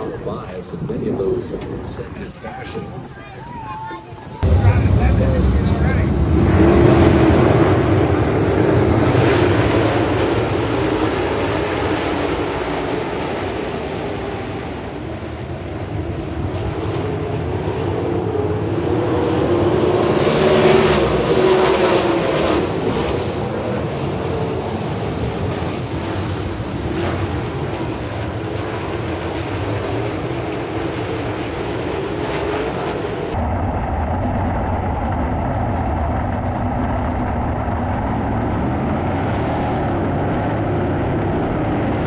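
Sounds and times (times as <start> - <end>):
atv engine running: 0.0 - 8.2
wind rumbling on microphone: 4.4 - 11.5.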